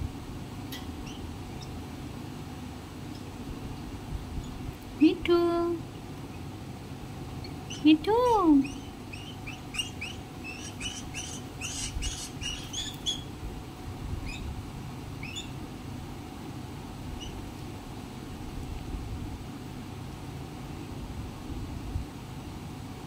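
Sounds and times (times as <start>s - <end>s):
low background rumble: 0.0s - 23.0s
bird chirping: 7.4s - 13.3s, 15.2s - 15.6s.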